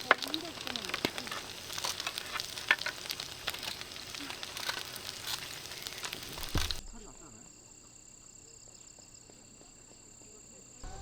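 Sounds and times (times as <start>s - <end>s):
campfire crackling and popping: 0.0s - 7.2s.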